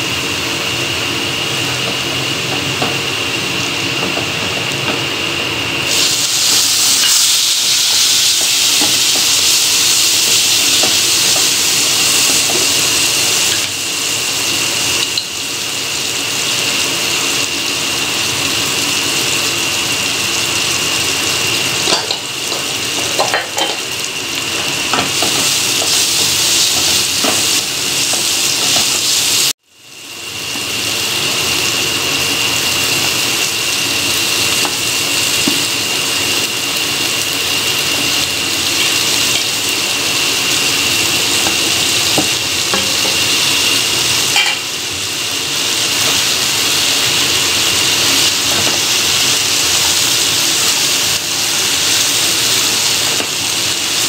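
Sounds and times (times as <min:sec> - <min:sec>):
oil sizzling in a pan: 0:00.0 - 0:54.0.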